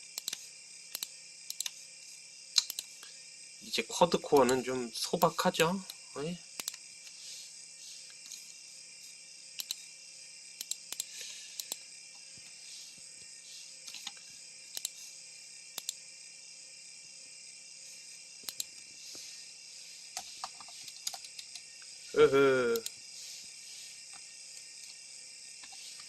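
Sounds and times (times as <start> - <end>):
faint high hiss: 17.8 - 25.0.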